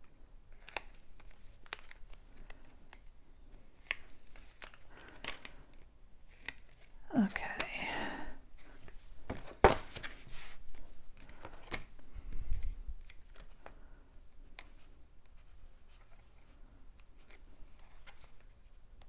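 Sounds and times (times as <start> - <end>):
paper rustling: 8.6 - 11.9.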